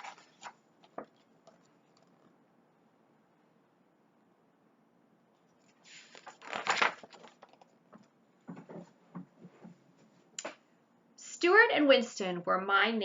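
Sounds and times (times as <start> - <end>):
book page rustling: 0.0 - 2.3, 5.6 - 7.8.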